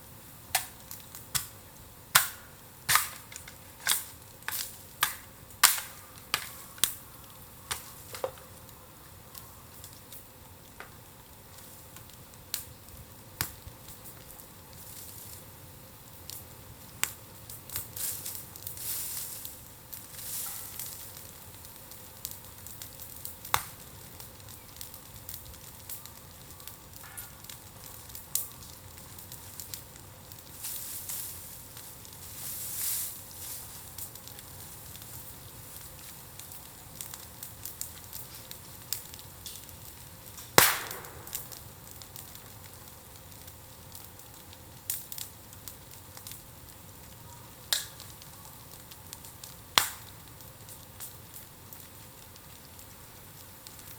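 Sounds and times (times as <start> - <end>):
bonfire crackling: 0.0 - 53.9
burning bamboo hissing: 0.0 - 53.9
bamboo popping and snapping: 0.5 - 1.5, 2.1 - 8.4, 23.4 - 31.2, 40.4 - 42.5, 47.7 - 48.2, 49.2 - 50.3.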